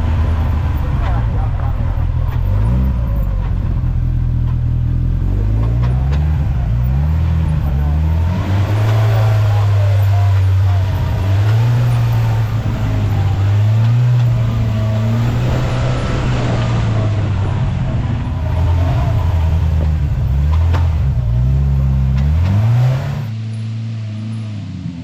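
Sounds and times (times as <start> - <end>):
engine revving under throttle: 0.0 - 25.0.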